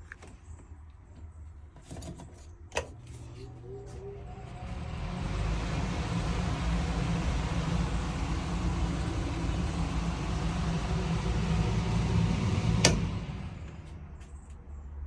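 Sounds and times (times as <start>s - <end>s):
truck engine idling: 4.2s - 14.2s.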